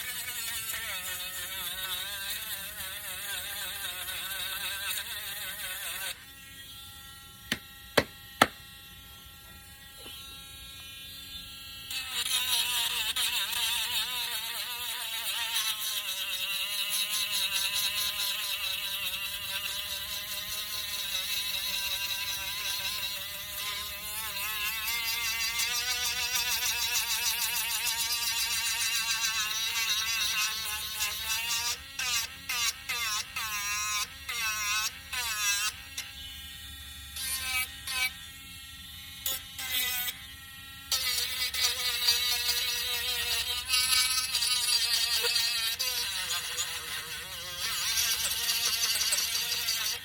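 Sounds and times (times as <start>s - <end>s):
electric sander whining: 4.9s - 11.1s.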